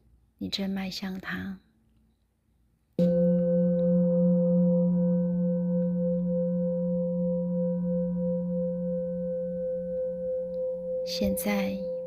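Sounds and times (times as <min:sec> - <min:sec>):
singing bowl ringing: 0:03.0 - 0:12.0.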